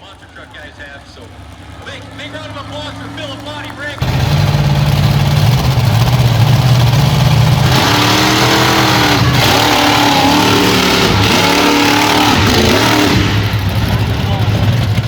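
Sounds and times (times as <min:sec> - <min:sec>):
engine idling and revving: 0:00.0 - 0:15.0.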